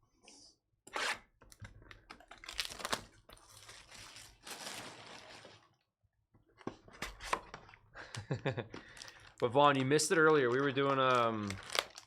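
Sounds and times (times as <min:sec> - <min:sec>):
paper-like card rustling: 0:09.0 - 0:12.0.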